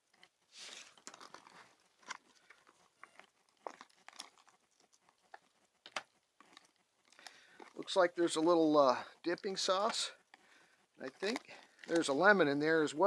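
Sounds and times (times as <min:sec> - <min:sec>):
plastic package crinkling: 0:11.0 - 0:12.4.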